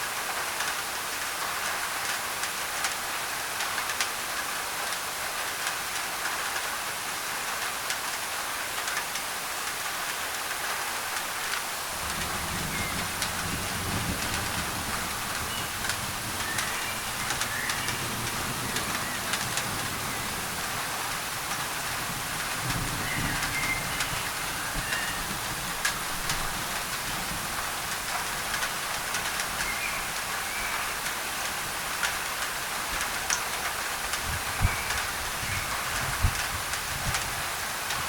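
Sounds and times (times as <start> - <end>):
rain on a tin roof: 0.0 - 38.0
white noise hiss: 0.0 - 38.0.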